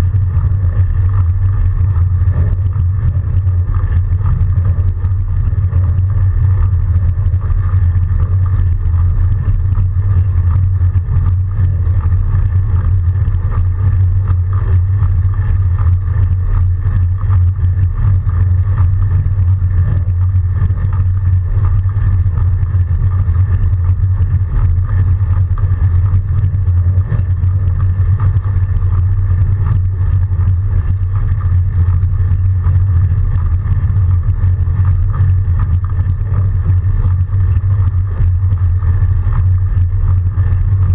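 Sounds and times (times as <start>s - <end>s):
high steady hum: 0.0s - 40.9s
wind buffeting microphone: 0.0s - 40.9s.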